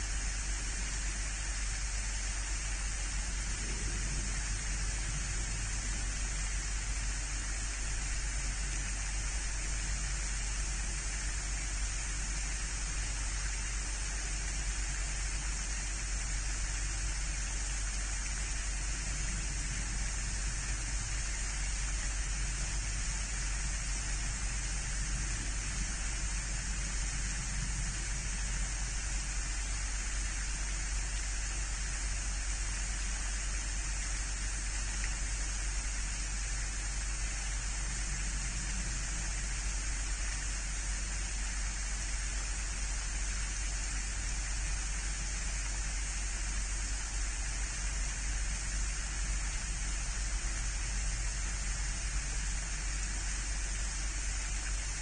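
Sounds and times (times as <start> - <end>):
low hum: 0.0 - 45.6
steady hiss: 0.0 - 55.0.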